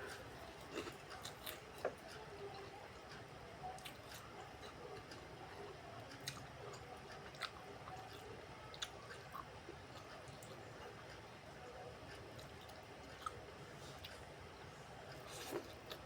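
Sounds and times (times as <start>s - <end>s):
close-up chewing food: 0.0s - 16.0s.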